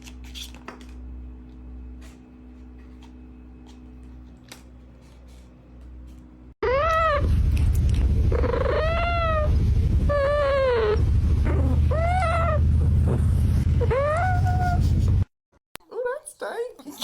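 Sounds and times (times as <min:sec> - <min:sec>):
low rumble: 0:06.6 - 0:15.2.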